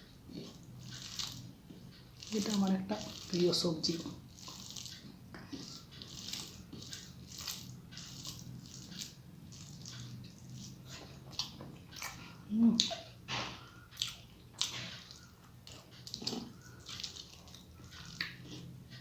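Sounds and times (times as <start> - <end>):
wet chewing and lip smacks: 0.3 - 19.0.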